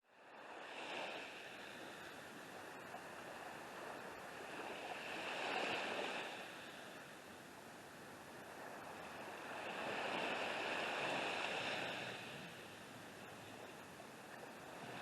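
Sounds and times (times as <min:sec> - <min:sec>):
surf washing onto beach: 0:08.4 - 0:15.0.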